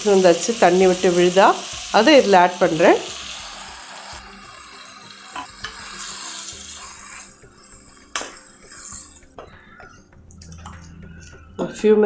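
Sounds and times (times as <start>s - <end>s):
vegetables sizzling in oil: 0.0s - 9.2s.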